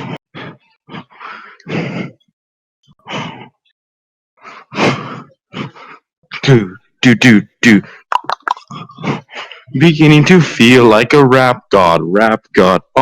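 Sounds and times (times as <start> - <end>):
man breathing heavily and grunting: 0.0 - 2.2, 3.0 - 3.6.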